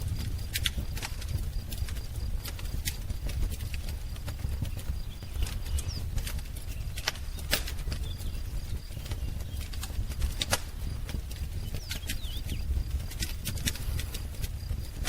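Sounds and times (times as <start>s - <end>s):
wood fire crackling: 0.0s - 15.0s
bird chirps: 4.4s - 10.4s, 11.6s - 12.9s.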